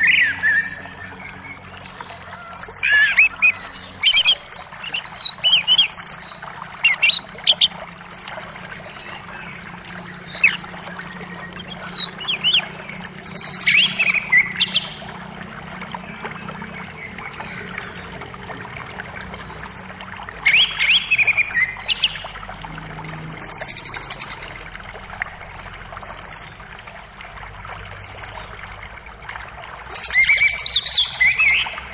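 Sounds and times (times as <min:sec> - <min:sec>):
bird trill: 0:00.0 - 0:15.0, 0:19.4 - 0:22.4, 0:29.9 - 0:31.9
songbirds chirping: 0:00.0 - 0:29.3
creek rushing: 0:00.0 - 0:31.9.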